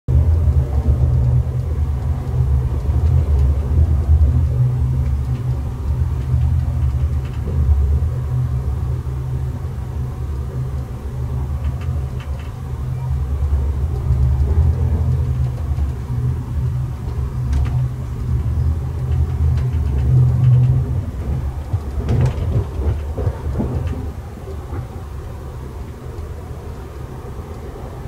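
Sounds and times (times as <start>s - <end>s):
train rumbling: 0.1s - 28.0s
faint clicks: 11.6s - 12.6s, 17.0s - 24.9s.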